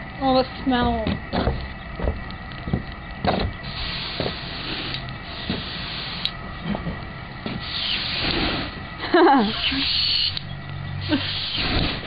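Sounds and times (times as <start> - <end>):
aerosol can spraying: 7.6 - 8.6.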